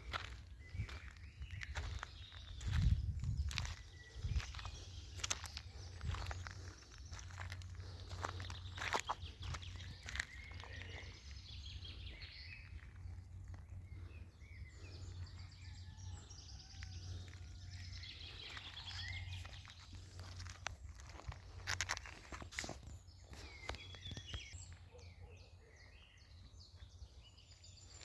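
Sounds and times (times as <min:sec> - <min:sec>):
footsteps: 0:00.0 - 0:11.1
small birds chirping: 0:00.0 - 0:28.0.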